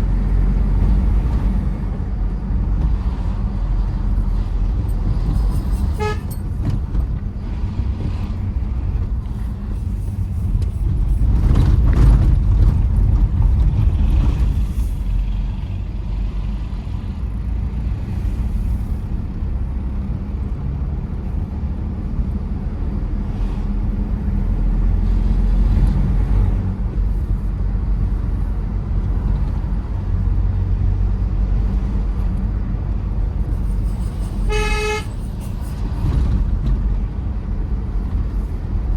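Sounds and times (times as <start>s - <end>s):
engine and road rumble: 0.0s - 38.9s
car horn toot: 5.9s - 6.4s, 34.4s - 35.3s.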